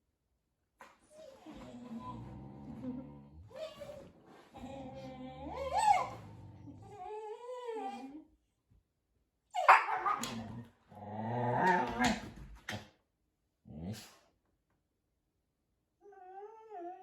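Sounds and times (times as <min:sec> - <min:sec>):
dog grumbling and whining: 0:01.1 - 0:08.3, 0:09.6 - 0:12.5, 0:16.0 - 0:17.0.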